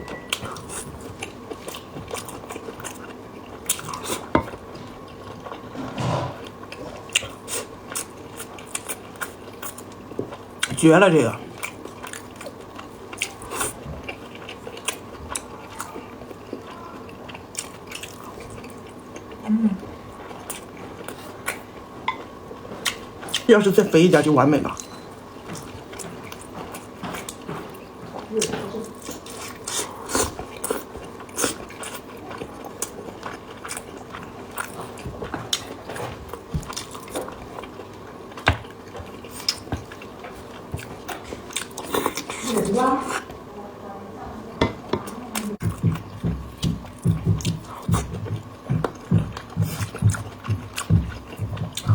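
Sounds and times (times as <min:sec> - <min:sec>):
close chewing: 0:06.5 - 0:21.8, 0:24.8 - 0:43.3, 0:45.0 - 0:51.9.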